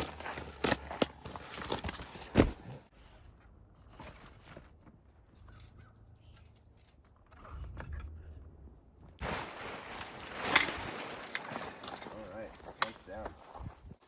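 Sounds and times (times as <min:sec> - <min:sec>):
footsteps in snow: 0:00.0 - 0:02.9, 0:09.2 - 0:14.0.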